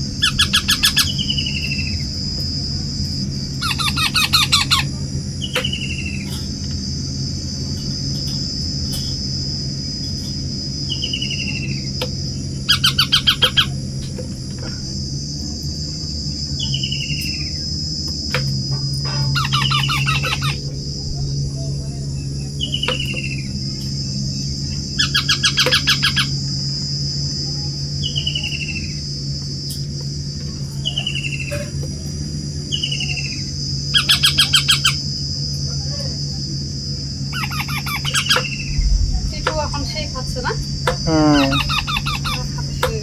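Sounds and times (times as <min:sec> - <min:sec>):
rapid chattering calls: 0:00.0 - 0:02.2, 0:03.2 - 0:06.6, 0:10.9 - 0:14.8, 0:19.0 - 0:26.5, 0:32.7 - 0:35.2, 0:37.2 - 0:43.0
high-pitched drone: 0:00.0 - 0:43.0
low hum: 0:00.0 - 0:43.0
young parrots calling: 0:00.1 - 0:02.0, 0:03.5 - 0:06.3, 0:12.5 - 0:13.8, 0:19.0 - 0:20.7, 0:22.2 - 0:26.4, 0:32.7 - 0:35.0, 0:37.3 - 0:38.8, 0:40.8 - 0:43.0.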